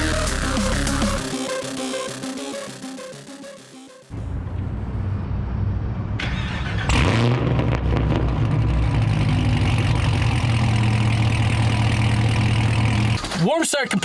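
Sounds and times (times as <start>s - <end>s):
loud car engine idling: 4.2s - 13.2s.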